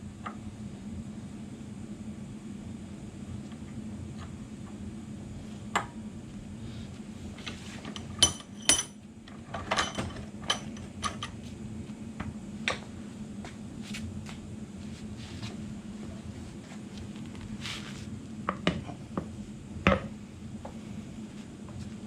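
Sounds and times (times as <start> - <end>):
steady low hum: 0.0 - 22.0
metal tools clinking: 7.8 - 9.0.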